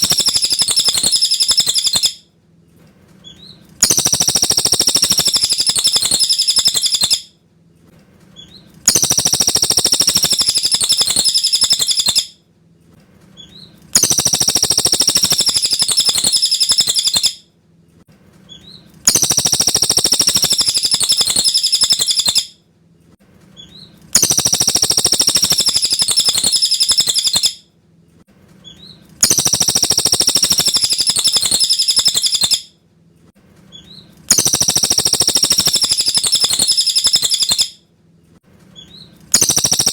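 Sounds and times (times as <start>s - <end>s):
bird singing high fast trill: 0.0s - 2.2s, 3.8s - 7.3s, 8.9s - 12.3s, 14.0s - 17.4s, 19.1s - 22.5s, 24.2s - 27.6s, 28.7s - 32.7s, 33.8s - 37.8s, 38.9s - 39.9s.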